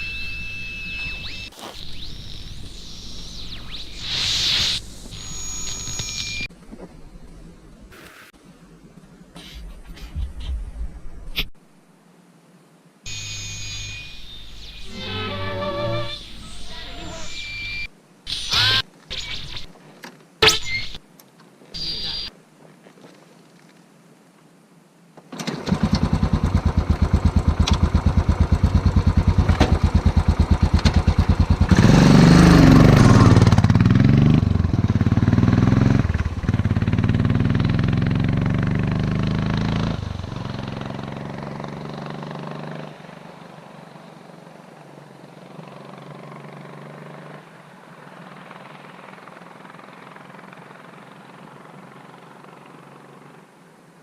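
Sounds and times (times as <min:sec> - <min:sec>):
motorcycle engine revving: 0:25.7 - 0:43.2, 0:45.5 - 0:47.4.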